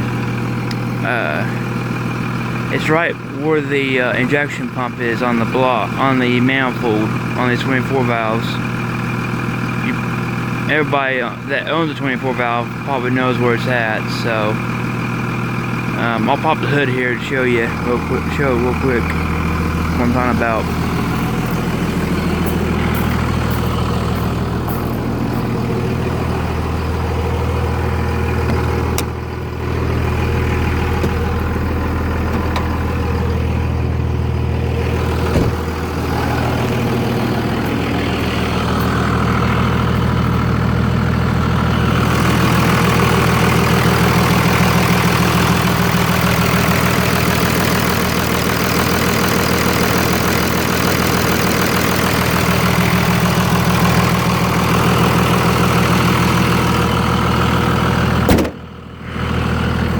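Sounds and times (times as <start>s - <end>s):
diesel engine idling: 0.0s - 59.9s
sharp knock: 58.3s - 58.6s.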